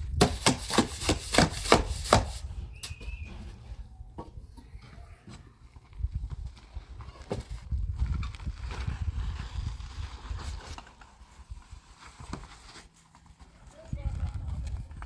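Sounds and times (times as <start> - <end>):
sharp knocks: 0.2 - 3.1.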